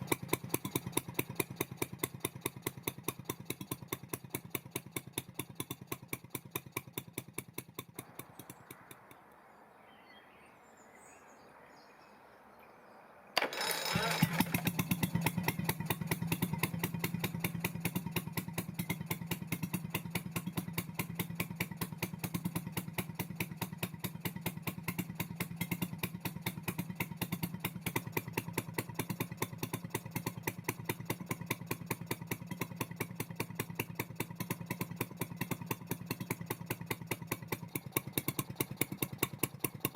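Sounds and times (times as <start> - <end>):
two-stroke boat engine running: 0.0 - 9.2, 13.4 - 39.9
electric starter: 13.4 - 14.8.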